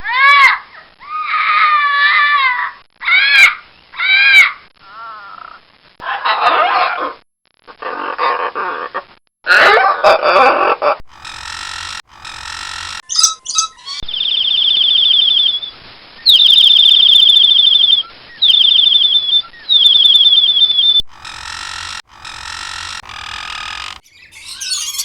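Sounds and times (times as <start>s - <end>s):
animal calls: 20.5s - 25.0s.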